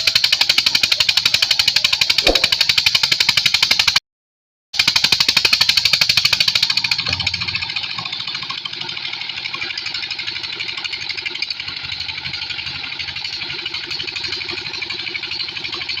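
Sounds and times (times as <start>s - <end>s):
pump engine running: 4.9s - 16.0s.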